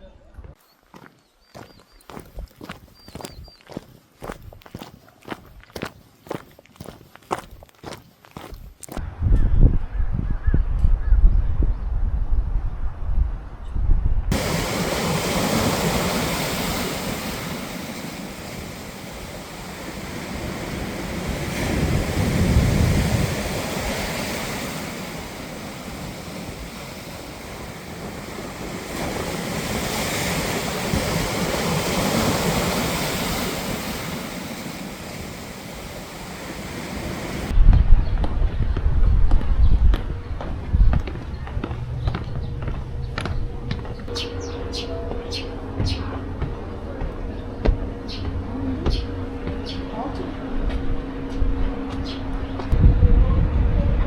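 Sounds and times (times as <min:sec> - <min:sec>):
sea surf washing onto beach: 0:14.3 - 0:37.5.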